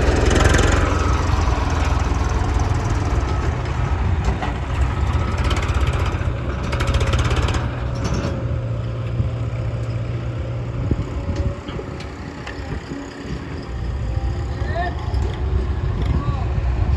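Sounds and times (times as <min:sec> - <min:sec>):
fast rattle: 0:00.0 - 0:08.4
tractor diesel engine running: 0:00.0 - 0:16.9.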